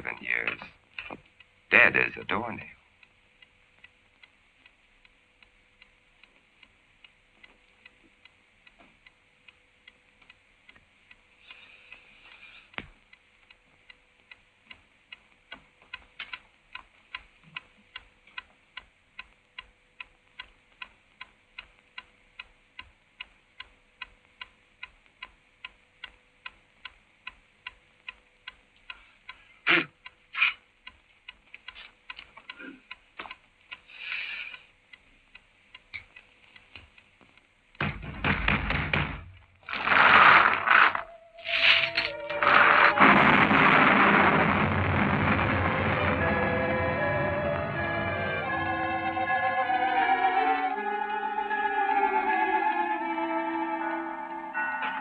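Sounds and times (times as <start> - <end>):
clock ticking: 0.0 - 40.0
loud knocks: 37.8 - 40.8.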